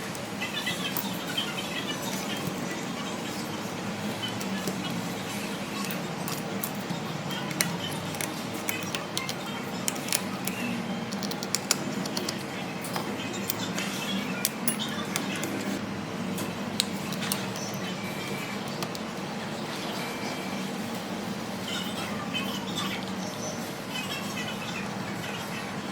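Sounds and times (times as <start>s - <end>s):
small tools clicking and tapping: 5.8s - 15.8s.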